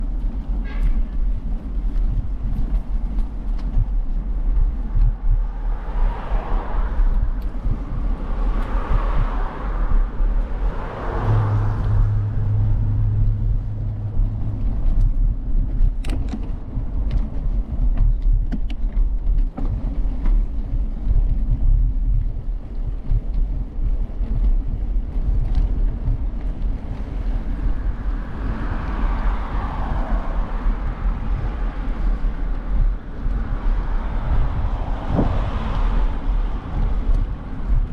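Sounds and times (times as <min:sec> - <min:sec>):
traffic noise: 0:00.0 - 0:37.9
wind buffeting microphone: 0:00.0 - 0:37.9
low steady hum: 0:11.2 - 0:28.0.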